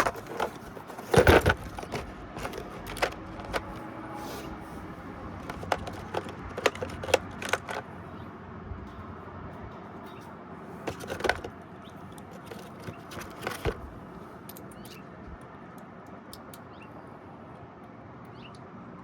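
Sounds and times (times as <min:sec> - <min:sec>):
metal clatter: 0:00.0 - 0:03.8, 0:05.4 - 0:07.9, 0:10.8 - 0:13.9.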